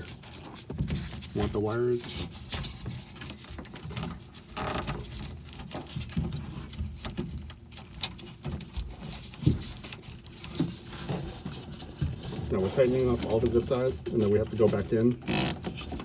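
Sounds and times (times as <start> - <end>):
zip tie rasping pull: 4.6 - 4.9, 15.3 - 15.7
zip ties ratcheting clicks: 15.3 - 15.6.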